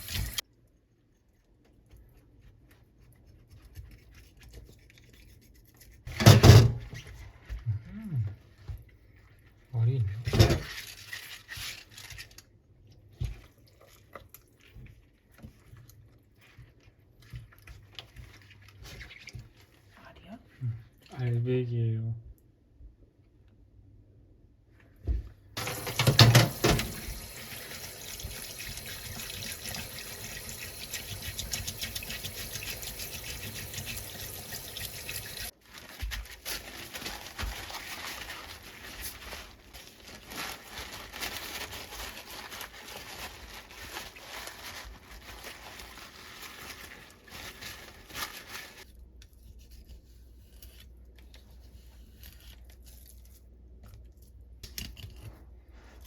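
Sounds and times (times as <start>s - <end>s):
tap water running into sink: 0.0s - 0.4s, 25.6s - 35.5s.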